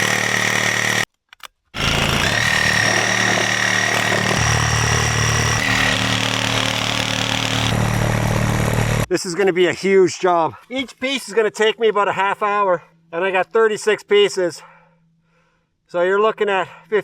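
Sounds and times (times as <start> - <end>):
power saw cutting wood: 0.0 - 1.1, 1.8 - 9.1.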